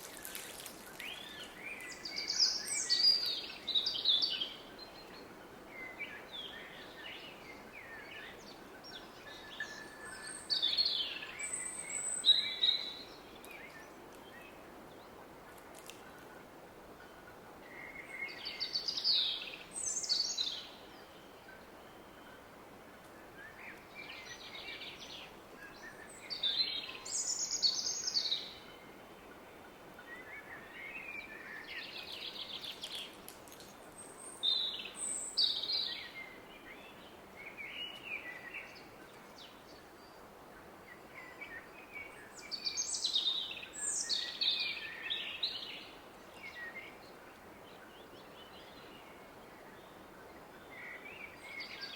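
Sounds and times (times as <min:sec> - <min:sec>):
songbirds chirping and trilling: 0:00.0 - 0:51.9.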